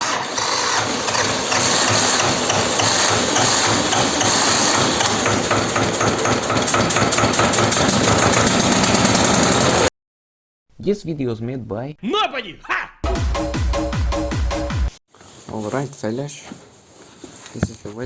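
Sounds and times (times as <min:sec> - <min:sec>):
tractor diesel engine knocking: 0:00.0 - 0:09.8.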